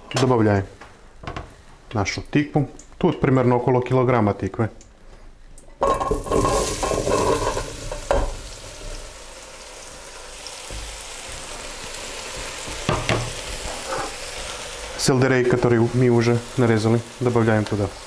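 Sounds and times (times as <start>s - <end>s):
pumpkin sizzling in oil: 5.8s - 18.0s.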